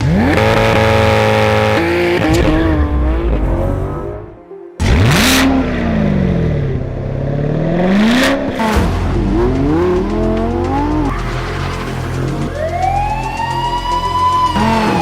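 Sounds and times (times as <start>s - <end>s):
sports car engine revving: 0.0s - 13.6s, 14.2s - 15.0s
sharp burst of noise: 11.1s - 14.0s.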